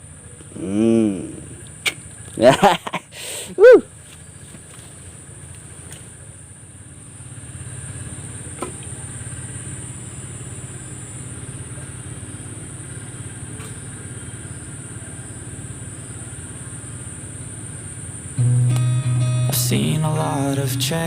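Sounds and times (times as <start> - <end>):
engine humming: 0.0 - 16.6, 17.8 - 21.0
high-pitched whine: 18.2 - 21.0.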